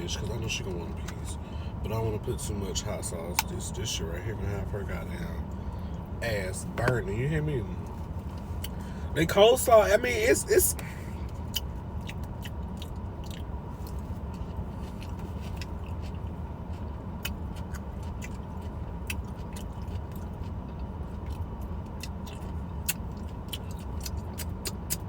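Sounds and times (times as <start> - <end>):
steady low rumble: 0.0 - 25.0
person chewing food: 11.3 - 25.0
sharp mouth clicks: 22.0 - 25.0.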